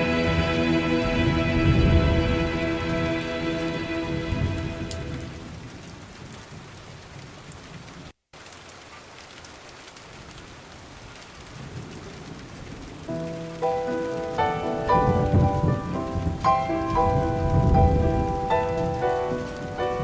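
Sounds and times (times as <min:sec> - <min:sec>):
song: 0:00.0 - 0:05.4, 0:13.2 - 0:20.0
steady rain hiss: 0:00.0 - 0:20.0.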